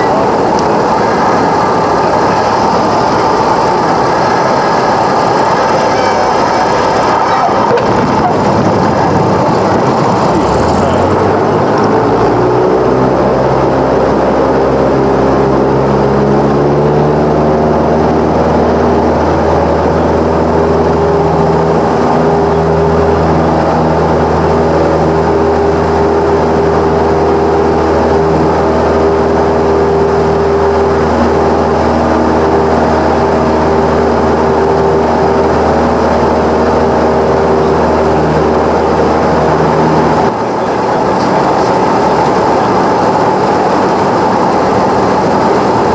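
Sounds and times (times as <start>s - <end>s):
light aircraft engine and propeller: 0.0s - 45.9s.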